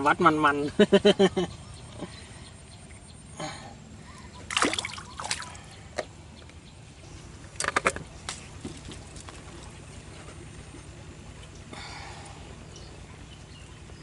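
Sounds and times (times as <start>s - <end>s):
water splashing: 4.4s - 5.7s.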